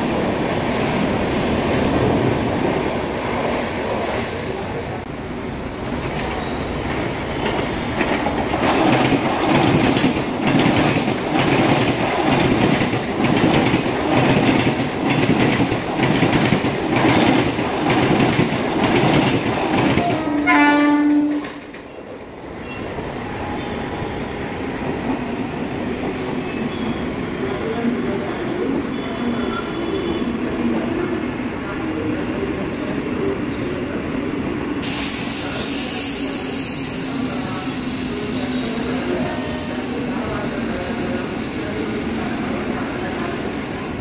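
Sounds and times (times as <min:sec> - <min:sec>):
train horn: 0:20.0 - 0:21.6.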